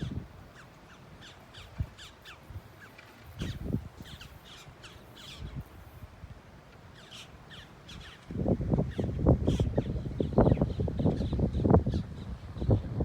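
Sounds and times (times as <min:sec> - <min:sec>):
wind on microphone: 0:00.0 - 0:00.5, 0:01.2 - 0:04.6, 0:05.2 - 0:06.4, 0:07.9 - 0:13.0.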